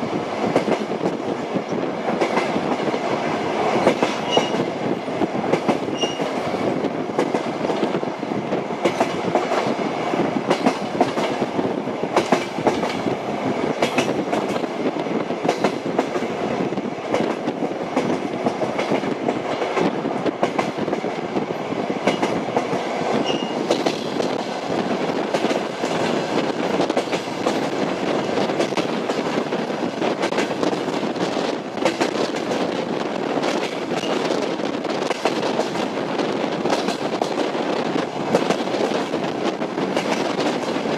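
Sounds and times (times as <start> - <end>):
clickety-clack at rail joints: 0.0 - 40.9
train wheels rumbling on rails: 0.0 - 40.9.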